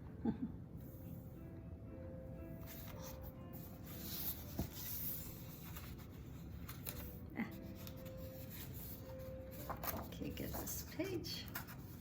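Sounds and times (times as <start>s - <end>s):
book pages rustling: 2.6s - 12.0s.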